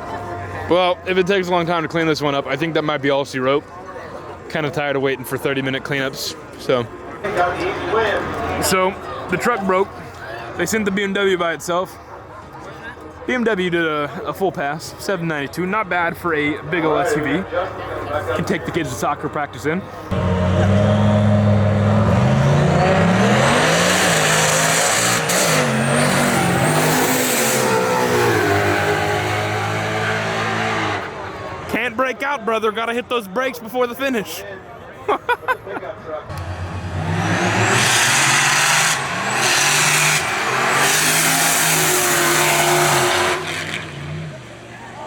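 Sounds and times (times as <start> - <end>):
engines revving at full throttle: 20.1 - 31.7, 36.3 - 45.0
racing cars accelerating hard: 20.1 - 31.7, 36.3 - 45.0.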